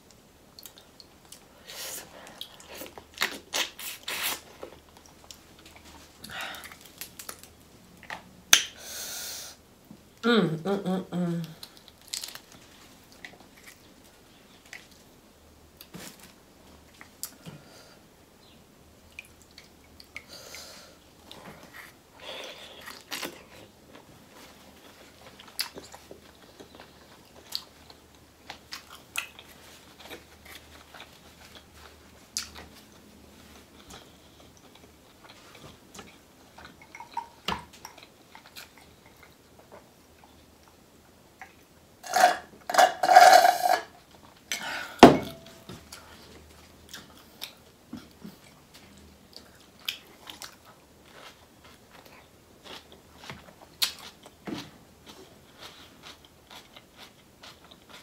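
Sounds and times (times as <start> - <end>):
soft crunch: 11.7 - 15.0
person chewing with mouth clicks: 55.0 - 58.0.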